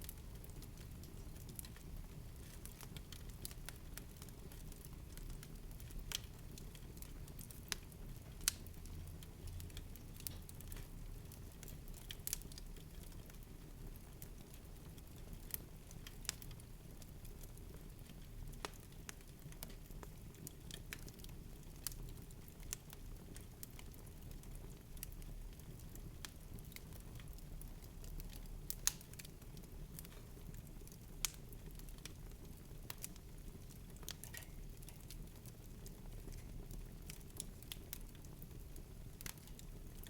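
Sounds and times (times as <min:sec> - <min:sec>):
faint clicks and snaps: 0:05.4 - 0:06.3, 0:07.0 - 0:08.7, 0:18.1 - 0:20.0, 0:28.1 - 0:29.3, 0:31.2 - 0:32.2, 0:34.0 - 0:35.2.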